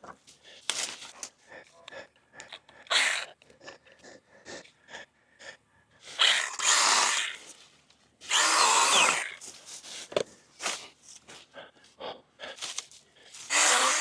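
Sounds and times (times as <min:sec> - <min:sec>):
branches snapping and rustling: 0:00.6 - 0:01.3
battery cutting tool: 0:02.9 - 0:03.3, 0:06.2 - 0:07.5, 0:08.2 - 0:09.4, 0:13.4 - 0:14.0.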